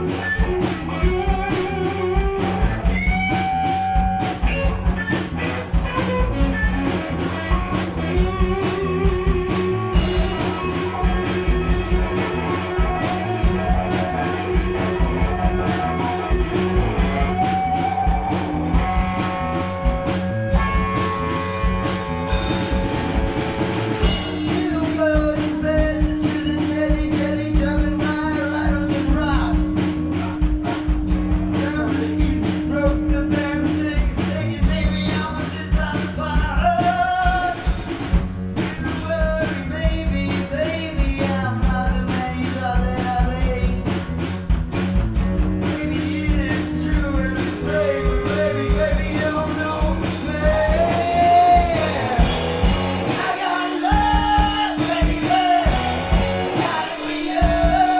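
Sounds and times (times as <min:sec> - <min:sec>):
bass: 0:00.0 - 0:57.9
drums steady beat: 0:00.0 - 0:57.9
guitar: 0:00.0 - 0:57.9
person singing: 0:24.2 - 0:37.8, 0:45.6 - 0:57.9.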